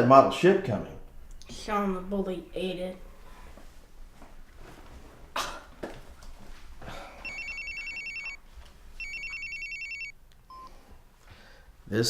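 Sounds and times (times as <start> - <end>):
telephone ringing: 7.2 - 8.4, 9.0 - 10.7.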